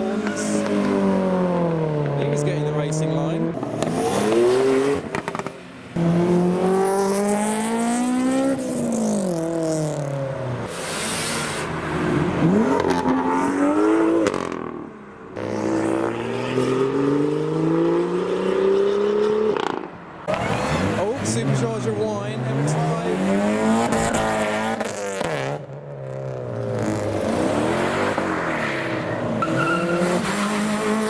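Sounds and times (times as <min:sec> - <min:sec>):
cars accelerating: 0:00.0 - 0:31.0
short hiss: 0:10.7 - 0:11.8.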